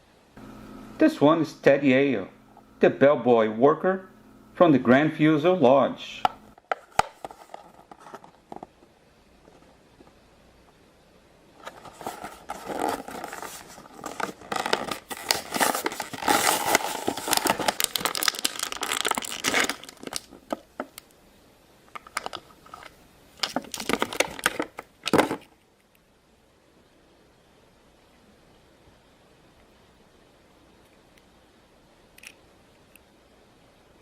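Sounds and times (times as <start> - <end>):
plastic packaging crinkling: 6.6 - 8.8, 11.6 - 21.1, 21.9 - 25.5.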